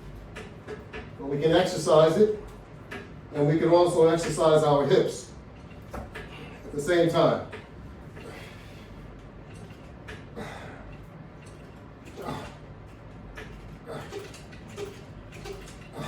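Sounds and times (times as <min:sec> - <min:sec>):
man breathing: 0:08.2 - 0:09.1, 0:10.3 - 0:11.0.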